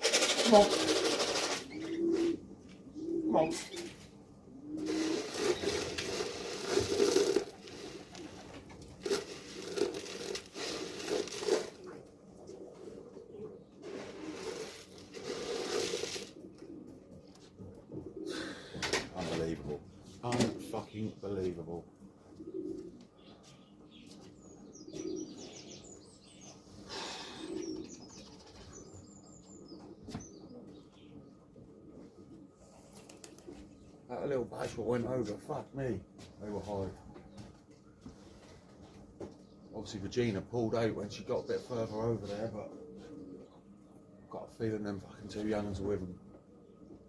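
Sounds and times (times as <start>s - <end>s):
wing flapping: 0.0s - 2.3s, 4.8s - 11.9s, 13.8s - 17.0s, 32.9s - 33.6s
pigeons cooing: 0.0s - 35.6s, 36.2s - 47.0s
rustling crinkling noise: 4.9s - 13.0s.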